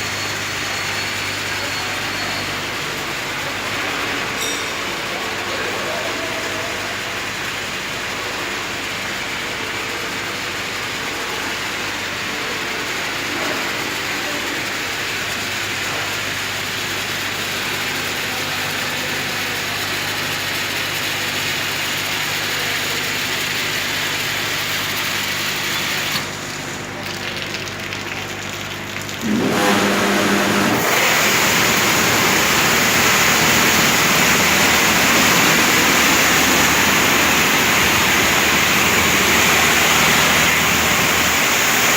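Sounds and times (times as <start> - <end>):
motor hum: 28.4 - 41.9
water spray: 29.2 - 41.9
loud hissing spray: 29.6 - 41.9.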